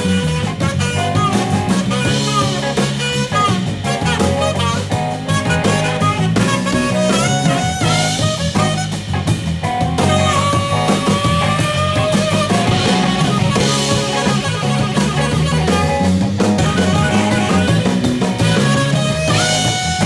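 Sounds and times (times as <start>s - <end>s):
bass: 0.0s - 20.0s
drum kit: 0.0s - 20.0s
guitar: 0.0s - 20.0s
lead line bending notes: 0.0s - 20.0s.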